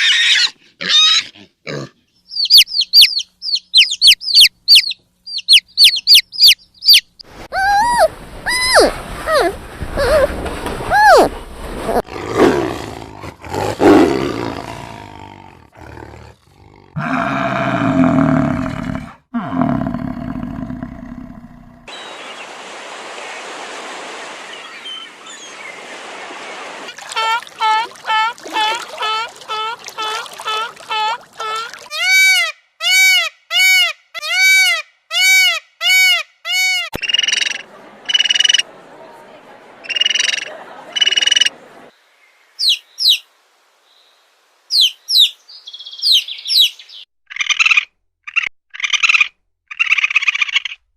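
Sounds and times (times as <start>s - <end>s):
buzzy croaking animal calls: 7.5s - 10.3s
wild animal roars: 12.0s - 21.9s
background hiss: 21.9s - 27.0s, 41.5s - 47.0s.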